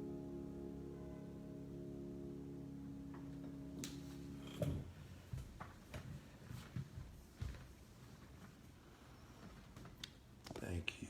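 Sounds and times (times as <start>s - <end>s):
instrumental chord ringing: 0.0s - 5.2s.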